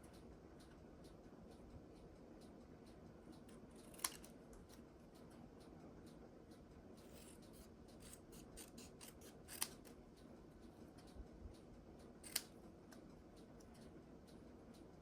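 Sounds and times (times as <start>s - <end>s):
craft snips cutting paper: 3.8s - 4.3s, 7.1s - 9.9s, 12.2s - 12.4s
sharp clicks: 12.2s - 12.6s.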